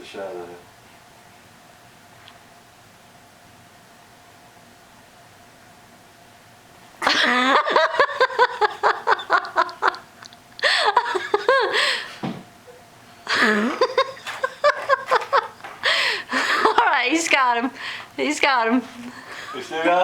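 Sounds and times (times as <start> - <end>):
people laughing: 7.0 - 11.9, 13.3 - 17.0, 19.0 - 20.0.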